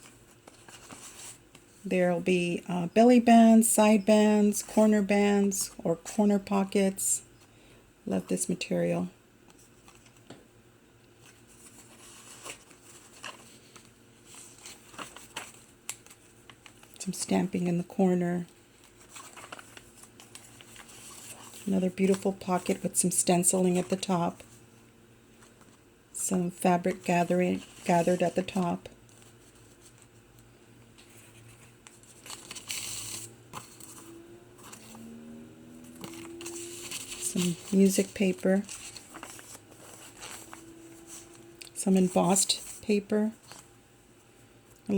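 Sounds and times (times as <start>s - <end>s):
paper pages rustling: 0.0s - 1.8s, 9.5s - 10.3s, 11.2s - 17.0s, 18.5s - 22.9s, 26.9s - 30.2s, 31.0s - 35.1s, 35.8s - 41.4s, 42.0s - 43.7s.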